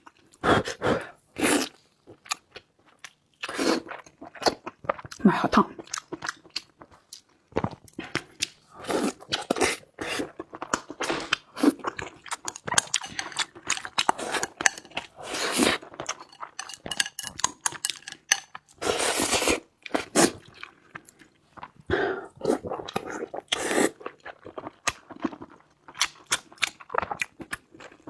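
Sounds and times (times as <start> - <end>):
close chewing and biting: 5.8 - 21.7
utensils clinking on dishes: 12.5 - 19.1.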